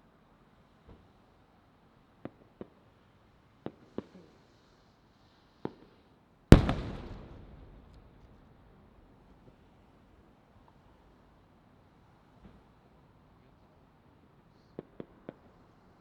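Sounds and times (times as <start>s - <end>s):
firework shells bursting: 6.5s - 8.9s.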